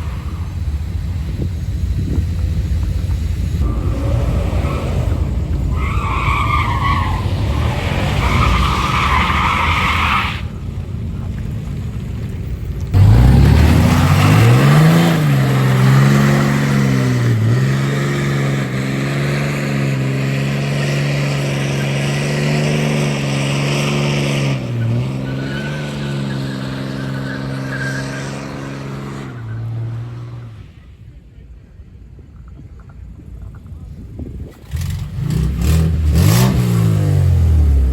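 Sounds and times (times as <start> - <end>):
tires squealing: 0.0 - 11.7, 12.9 - 30.9
truck engine revving: 0.0 - 30.7, 34.6 - 37.9.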